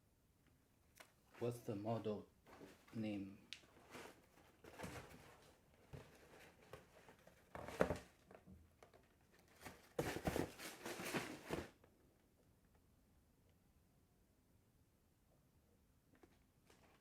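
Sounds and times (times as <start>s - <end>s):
rustling of shoe packaging: 2.4s - 11.9s.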